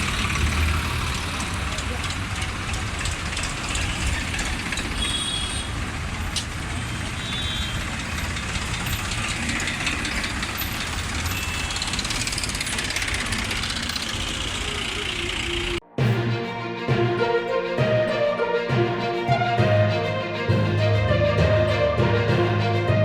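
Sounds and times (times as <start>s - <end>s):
tractor engines running: 0.0s - 15.8s.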